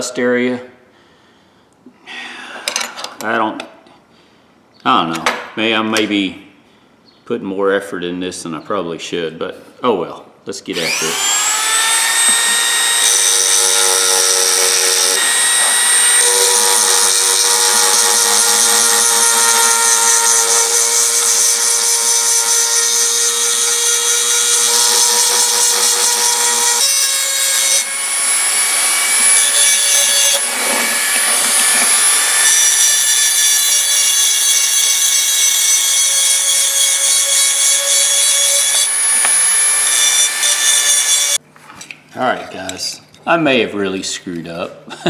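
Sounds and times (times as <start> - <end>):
power tool grinding rust: 10.7 - 41.4.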